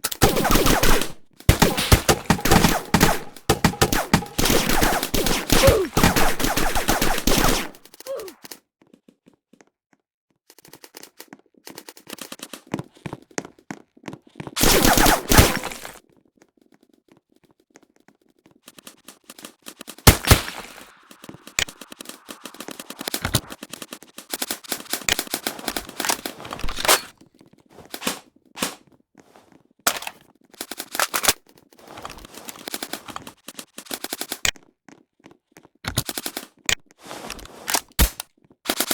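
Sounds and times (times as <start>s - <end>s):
airsoft guns firing bursts: 0.0s - 8.0s, 14.6s - 16.0s, 20.1s - 23.6s, 38.0s - 38.9s
single airsoft shots: 0.1s - 7.8s, 20.1s - 21.0s.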